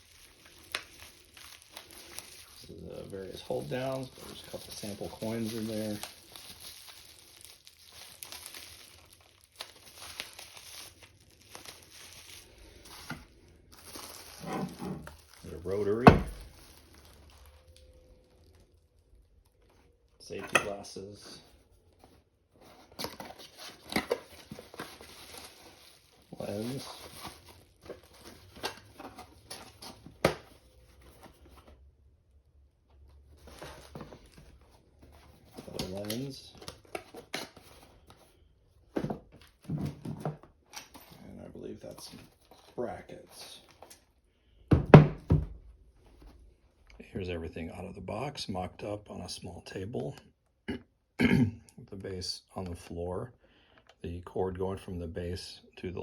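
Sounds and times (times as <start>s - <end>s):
packaging crinkling and rustling: 0.0s - 20.8s, 21.4s - 31.8s, 33.0s - 40.8s.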